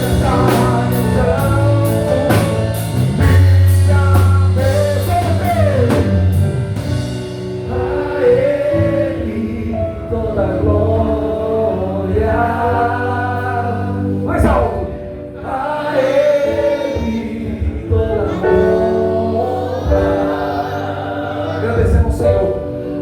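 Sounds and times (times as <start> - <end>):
person singing: 0.0 - 6.4, 15.4 - 23.0
drums and cymbal hits: 0.0 - 8.3
live rock band playing: 0.0 - 9.5
bass and guitar chords: 0.0 - 23.0.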